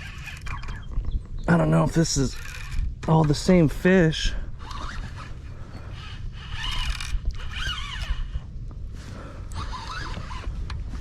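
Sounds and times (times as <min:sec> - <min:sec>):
fishing reel whirring: 0:00.0 - 0:01.1, 0:02.1 - 0:03.0, 0:03.9 - 0:08.5, 0:09.5 - 0:10.6.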